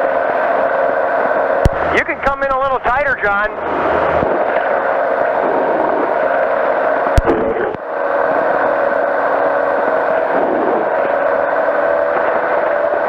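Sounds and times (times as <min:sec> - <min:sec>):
engine and propeller droning: 0:00.0 - 0:13.0.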